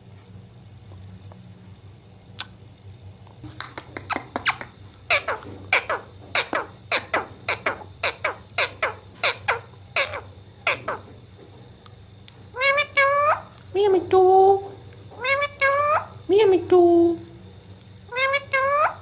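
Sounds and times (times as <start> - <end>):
low steady hum: 0.0 - 19.0
parrot shrill calls: 4.5 - 11.1, 12.5 - 13.6, 15.2 - 16.2, 18.1 - 19.0.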